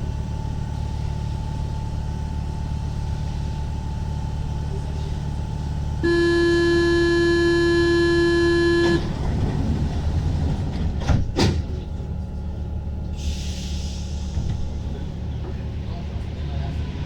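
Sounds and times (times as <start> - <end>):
train hum: 0.0 - 17.0
door warning buzzer: 6.0 - 9.1
train doors clunking shut: 8.8 - 12.1.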